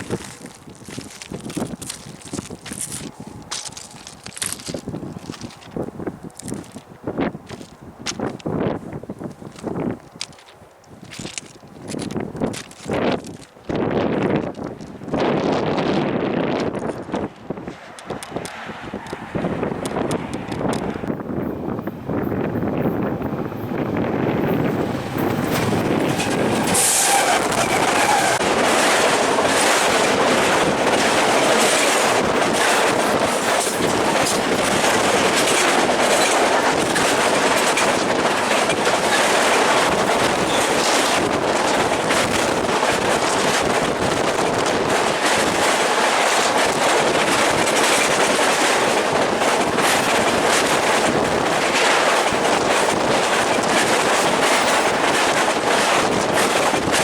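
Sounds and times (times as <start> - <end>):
train wheels clacking on rails: 18.0 - 57.0.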